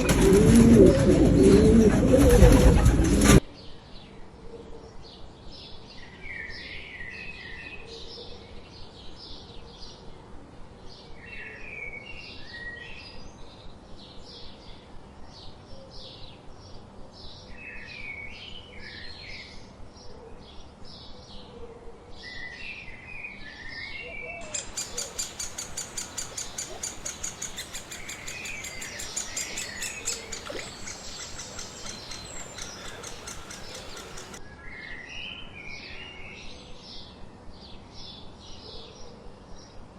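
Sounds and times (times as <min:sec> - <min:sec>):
warbled bird song: 0:10.8 - 0:39.8
birds chirping: 0:24.1 - 0:34.4
rapid high bird chirping: 0:24.4 - 0:34.4.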